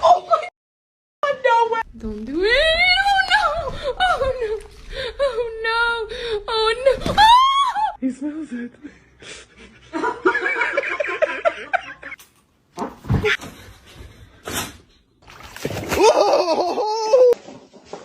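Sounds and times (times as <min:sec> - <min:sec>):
person laughing hard: 0:16.0 - 0:17.4.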